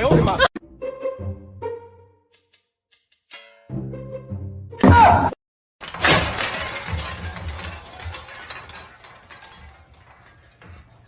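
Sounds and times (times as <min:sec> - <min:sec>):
clattering and rattling: 0:05.8 - 0:11.0.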